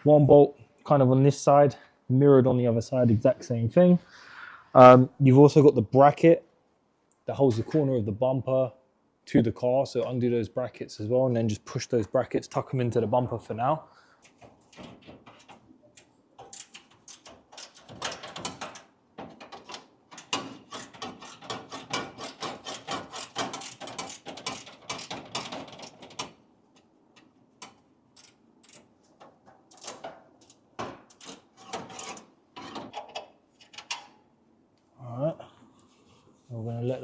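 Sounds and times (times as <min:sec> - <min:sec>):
hand tools clicking and scraping: 0:14.2 - 0:34.2.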